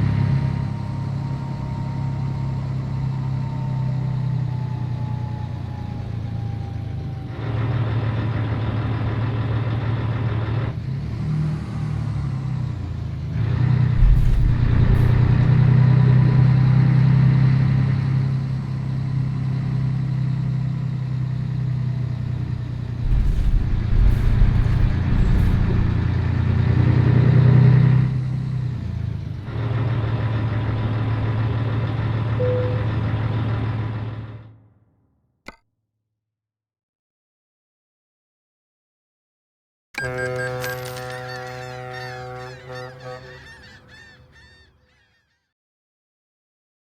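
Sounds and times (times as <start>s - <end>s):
truck diesel engine running: 0.0s - 34.5s.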